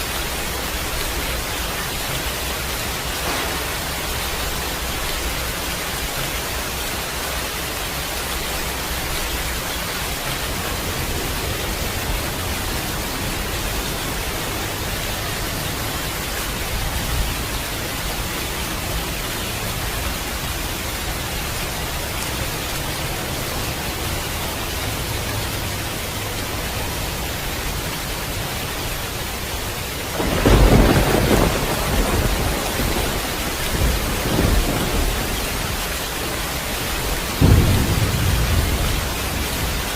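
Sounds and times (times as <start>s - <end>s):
thunder rumbling: 0.0s - 18.7s, 30.0s - 39.9s
heavy rain: 0.0s - 39.9s
loud thunder clap: 3.0s - 4.9s, 30.2s - 35.5s, 37.4s - 39.9s.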